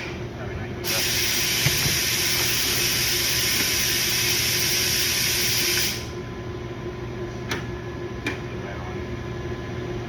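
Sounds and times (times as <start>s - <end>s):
pressurized air hiss: 0.8s - 6.1s.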